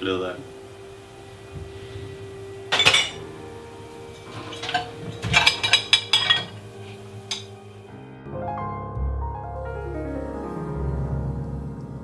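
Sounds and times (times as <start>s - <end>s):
dishes and cutlery clinking: 1.6s - 3.4s, 4.0s - 7.7s.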